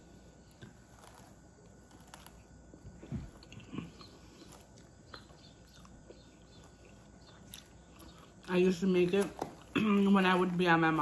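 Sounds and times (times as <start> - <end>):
wet chewing: 0.4 - 11.0.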